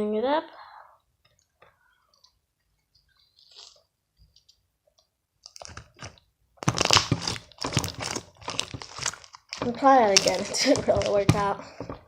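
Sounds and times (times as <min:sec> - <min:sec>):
slime crackling and popping: 0:05.4 - 0:12.0.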